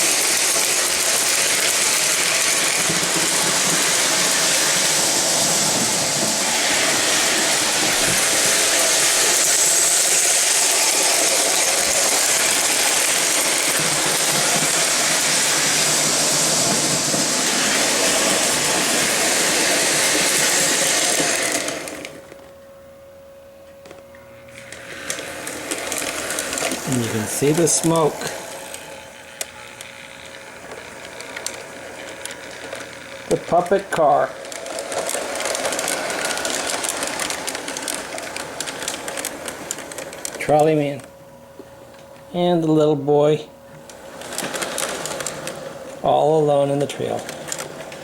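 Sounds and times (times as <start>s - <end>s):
model train clattering: 0.0s - 22.1s, 30.7s - 40.4s, 44.2s - 45.6s, 46.6s - 48.0s
faint steady hum: 22.1s - 34.4s.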